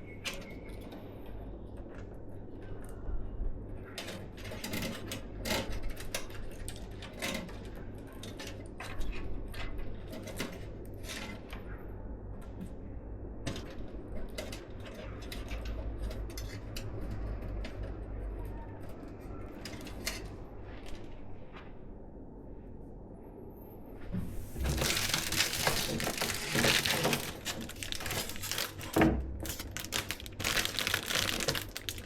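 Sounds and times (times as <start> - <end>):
low steady hum: 17.6 - 32.0.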